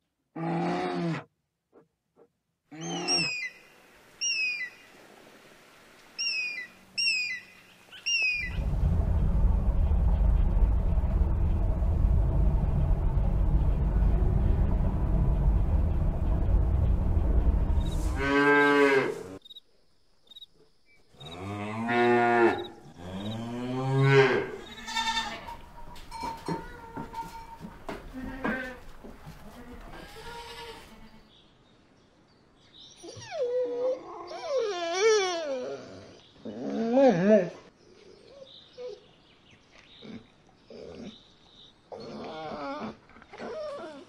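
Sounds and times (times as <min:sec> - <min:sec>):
loud low rumble: 0:08.3 - 0:19.4, 0:24.4 - 0:28.1.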